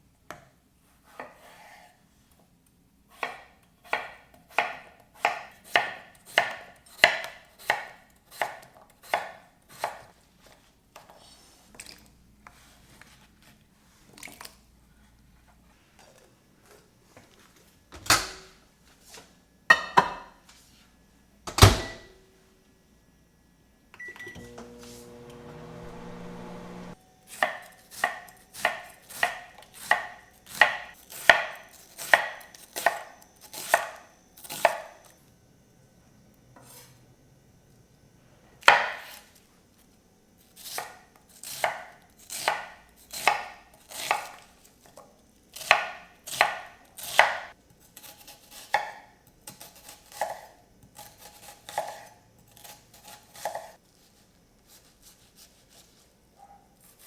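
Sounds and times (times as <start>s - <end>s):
knife chopping on cutting board: 3.1s - 10.1s, 27.3s - 34.8s, 40.6s - 44.4s, 45.6s - 53.8s.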